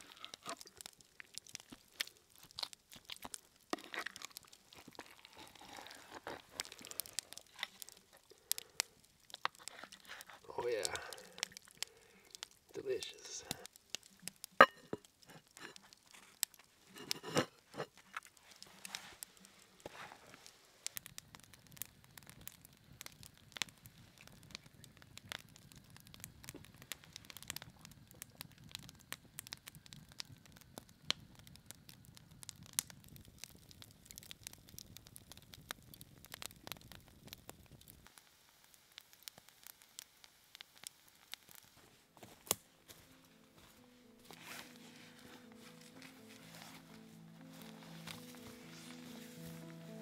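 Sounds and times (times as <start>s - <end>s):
rustling: 0.0s - 12.7s, 13.5s - 21.0s, 41.6s - 50.0s
campfire crackling: 0.0s - 50.0s.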